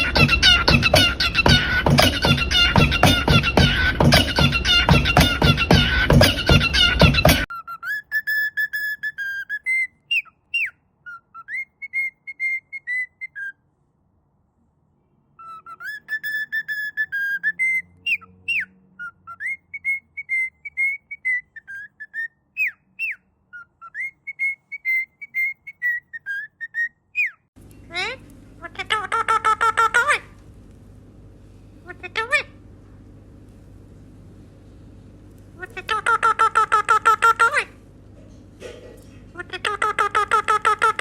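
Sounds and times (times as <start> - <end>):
parrot whistling a tune: 0.0 - 13.6, 15.4 - 27.5.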